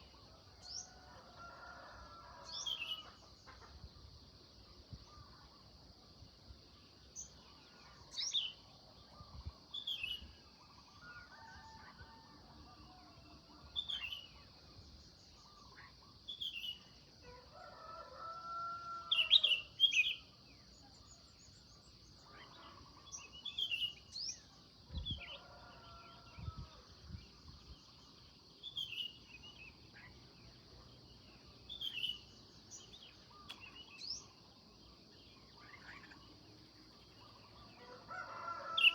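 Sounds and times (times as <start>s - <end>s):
drawn-out multi-tone bird call: 37.1s - 38.9s.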